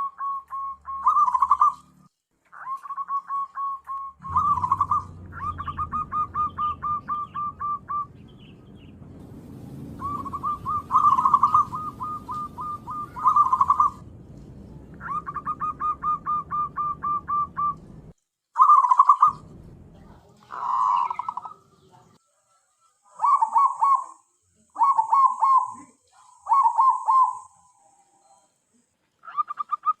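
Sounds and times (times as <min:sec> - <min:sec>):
dove cooing: 0:00.0 - 0:08.5, 0:10.0 - 0:14.0, 0:15.0 - 0:17.9, 0:20.5 - 0:21.8, 0:23.1 - 0:24.2, 0:24.8 - 0:28.4
low hum: 0:04.2 - 0:18.2, 0:19.2 - 0:20.9.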